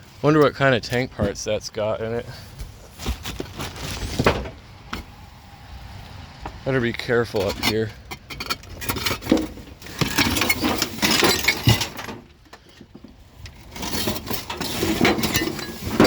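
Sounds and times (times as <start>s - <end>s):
broken porcelain clattering: 8.1s - 12.2s, 13.8s - 16.0s.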